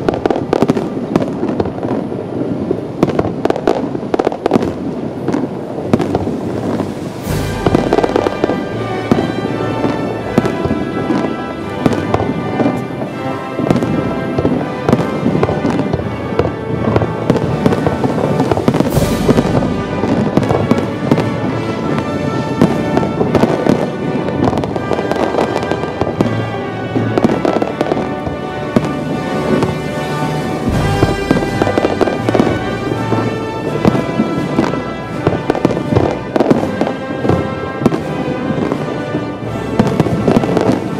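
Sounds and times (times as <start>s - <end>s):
deep firework booms: 0.0s - 40.9s
fireworks bangs and crackles: 0.0s - 40.9s
music: 0.0s - 40.9s.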